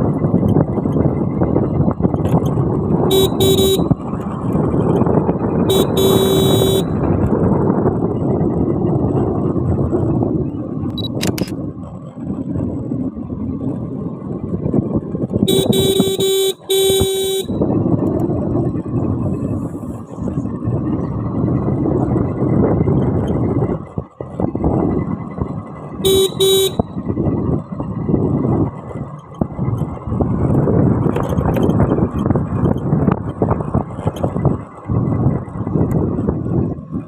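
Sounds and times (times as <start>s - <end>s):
motorcycle riding noise: 0.0s - 37.0s
vehicle horn honking: 3.1s - 4.0s, 5.7s - 7.1s, 15.5s - 17.7s, 26.0s - 26.9s.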